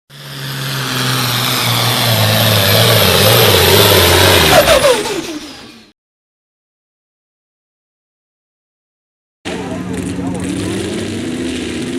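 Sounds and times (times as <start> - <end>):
truck engine at high revs: 0.1 - 5.9, 9.5 - 11.9.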